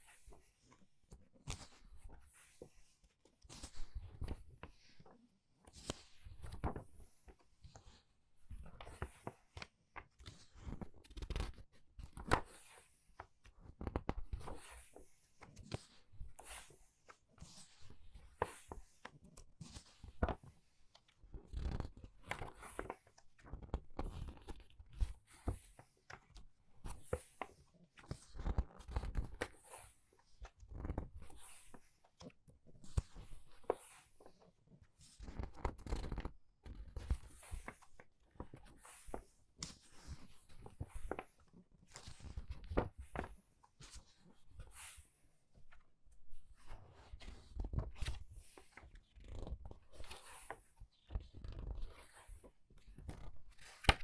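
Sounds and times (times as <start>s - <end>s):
book pages being turned: 1.4s - 2.8s, 3.4s - 5.0s, 5.7s - 20.6s, 21.3s - 45.8s, 46.4s - 54.0s.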